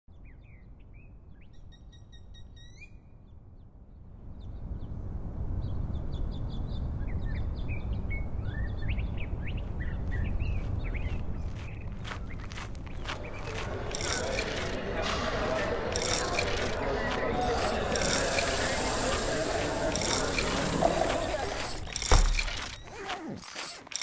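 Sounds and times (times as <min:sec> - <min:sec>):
birds chirping: 0:08.9 - 0:24.0
low background noise: 0:12.7 - 0:22.8.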